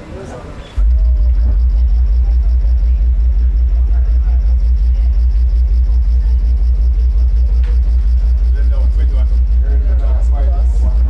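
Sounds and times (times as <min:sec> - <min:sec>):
deep pulsing bass tone: 0:00.8 - 0:11.0.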